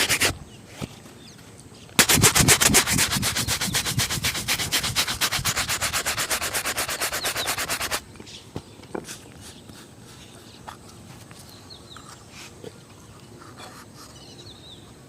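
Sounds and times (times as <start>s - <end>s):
shoe shining rubbing strokes: 0.0s - 0.4s, 2.0s - 8.0s.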